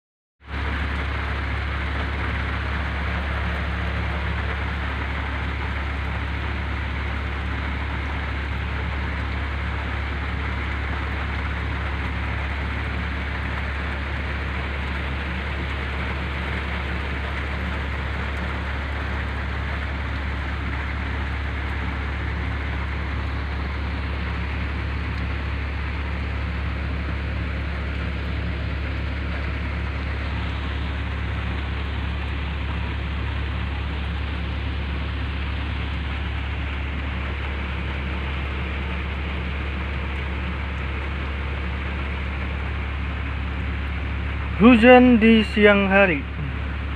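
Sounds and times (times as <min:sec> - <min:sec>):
heavy rain pouring: 0:00.4 - 0:46.9.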